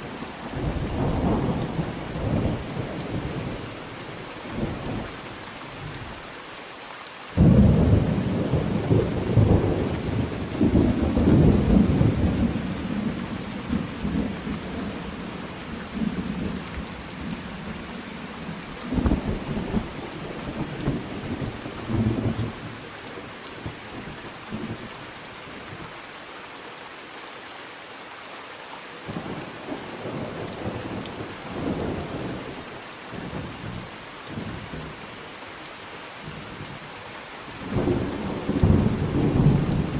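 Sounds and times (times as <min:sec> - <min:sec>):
steady rain: 0:00.0 - 0:39.9
thunder rumbling: 0:18.5 - 0:22.5, 0:37.6 - 0:39.9.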